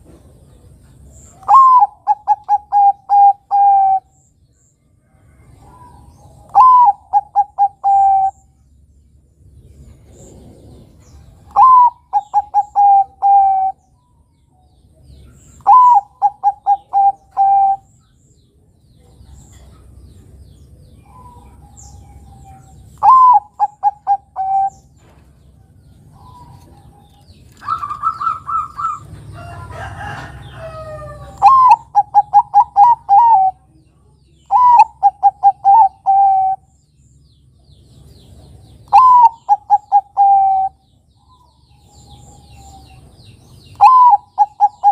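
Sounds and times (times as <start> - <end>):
dove cooing: 1.4 - 4.1, 5.6 - 8.5, 10.3 - 13.8, 15.6 - 17.9, 21.0 - 25.1, 26.1 - 33.7, 34.5 - 36.7, 38.9 - 40.8, 43.7 - 44.9.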